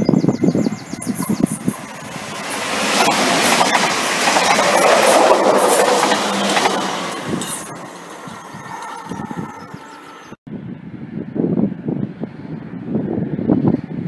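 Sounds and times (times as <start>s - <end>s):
train wheels rushing on rails: 0.6s - 10.3s.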